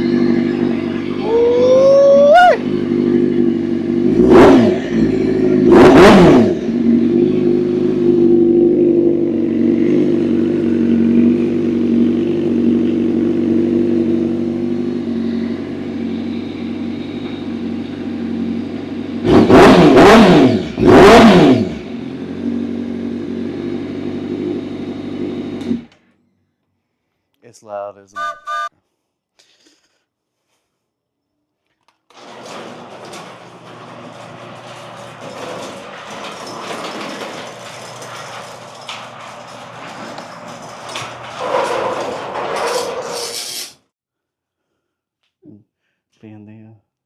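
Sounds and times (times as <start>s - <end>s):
motorcycle engine idling and revving: 0.0s - 26.1s.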